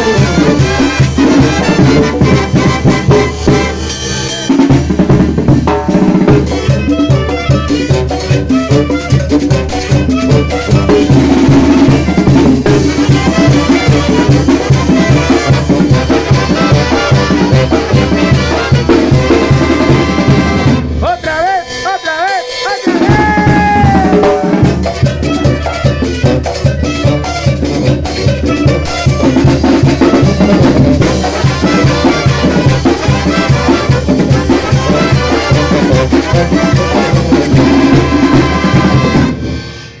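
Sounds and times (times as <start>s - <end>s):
drum kit with snare: 0.0s - 40.0s
wind instrument melody: 0.0s - 40.0s.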